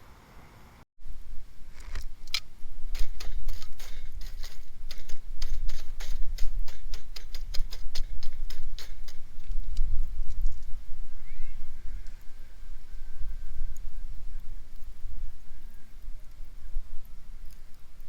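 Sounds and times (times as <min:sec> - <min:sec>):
constant low rumble: 0:00.0 - 0:18.0
sharp clicks and ticks: 0:01.8 - 0:10.7.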